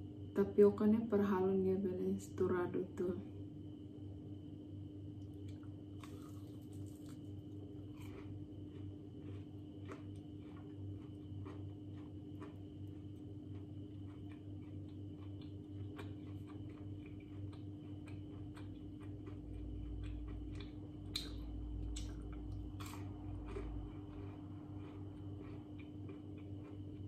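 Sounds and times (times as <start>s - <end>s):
steady low hum: 0.0s - 27.0s
chewing crispy fried food: 5.1s - 27.0s.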